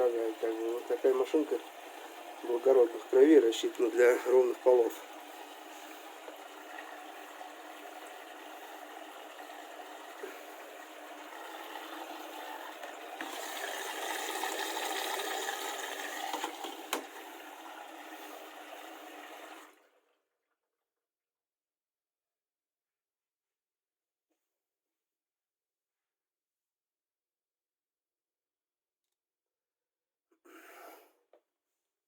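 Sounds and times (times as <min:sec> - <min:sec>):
water rushing: 0:00.0 - 0:19.9.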